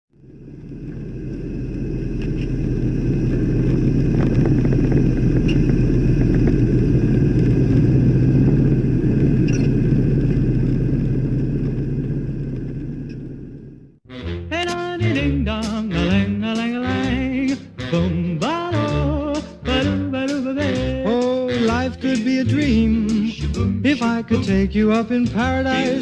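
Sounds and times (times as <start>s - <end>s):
car engine idling: 0.1s - 26.0s
faint engine ticks: 0.2s - 13.9s.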